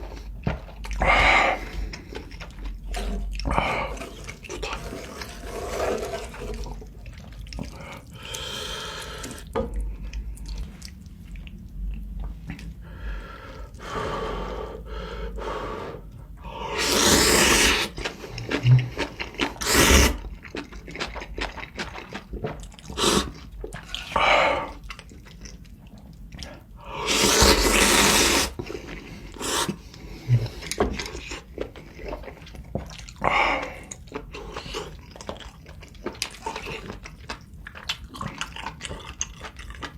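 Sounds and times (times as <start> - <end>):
chewing: 0.0 - 12.7, 16.9 - 39.9
slurping noodles and soup: 1.0 - 9.5, 15.5 - 20.6, 21.6 - 24.8, 26.4 - 37.1.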